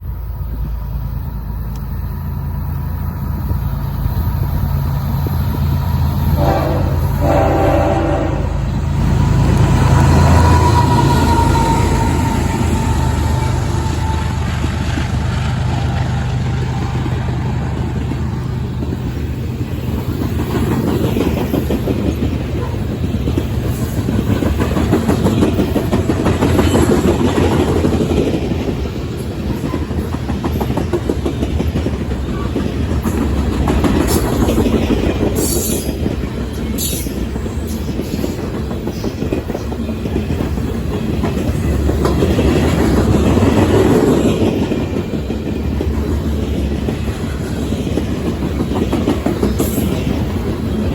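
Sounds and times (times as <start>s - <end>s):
clickety-clack over rail joints: 0.0s - 50.9s
freight train rumbling past: 0.0s - 50.9s
high-pitched wheel squeals: 10.2s - 14.4s.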